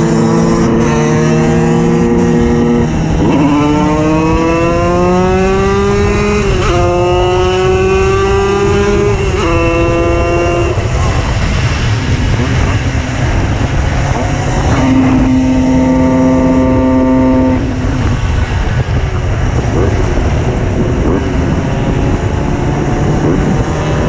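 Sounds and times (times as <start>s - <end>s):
two-stroke moped engine revving: 0.0s - 18.2s.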